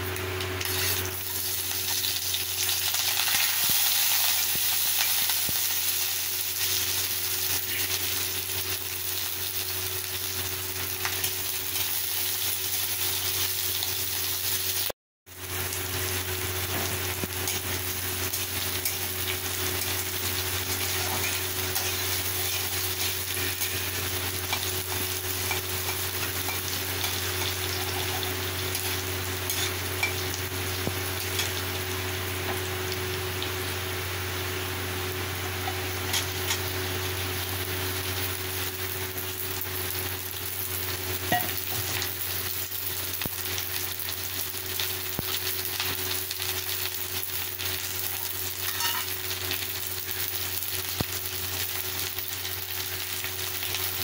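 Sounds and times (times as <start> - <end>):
vegetables sizzling in hot oil: 0.0 - 54.0
metal spatula scraping pan: 48.6 - 49.1.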